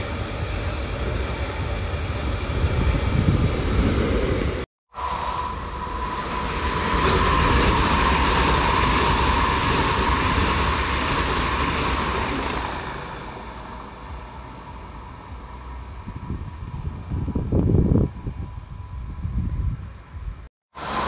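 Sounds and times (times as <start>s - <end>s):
train running past: 0.0s - 21.0s
high whine: 4.9s - 21.0s.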